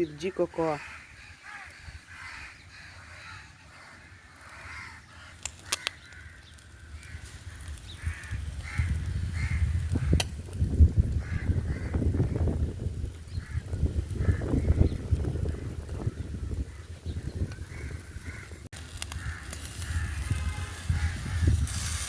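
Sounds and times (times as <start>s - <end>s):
bird harsh calls: 0.0s - 10.2s
sharp clicks: 5.3s - 8.8s, 9.9s - 10.6s.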